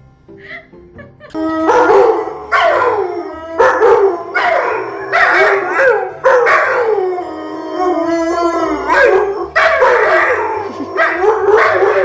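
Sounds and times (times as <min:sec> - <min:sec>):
dog howling: 0:01.4 - 0:12.0.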